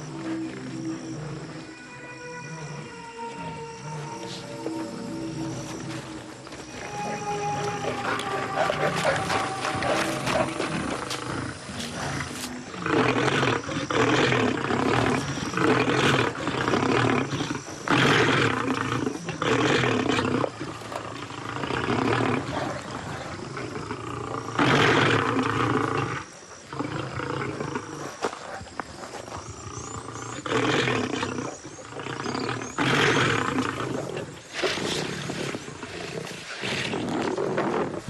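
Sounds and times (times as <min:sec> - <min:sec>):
lions roaring: 0:00.0 - 0:28.2, 0:29.6 - 0:38.0.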